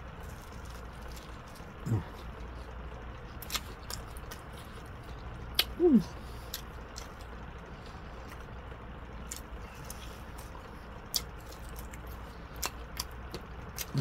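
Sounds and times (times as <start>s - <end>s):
person chewing with lip smacks: 0.3s - 8.5s, 9.2s - 14.0s
short vocal hum: 5.6s - 6.2s.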